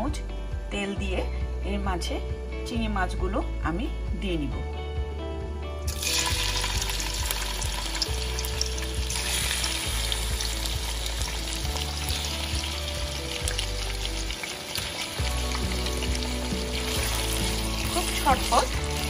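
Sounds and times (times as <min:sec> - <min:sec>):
background music: 0:00.0 - 0:19.0
prawns sizzling in hot oil: 0:05.9 - 0:19.0.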